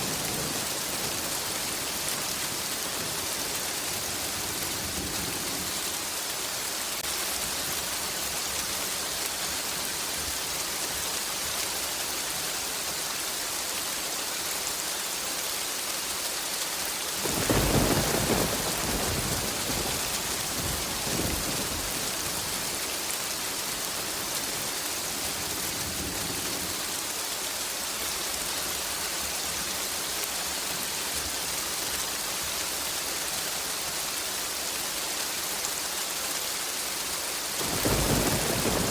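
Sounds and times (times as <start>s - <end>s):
heavy rain falling: 0.0s - 38.9s
thunderclap rumbling: 17.2s - 22.8s, 37.6s - 38.9s.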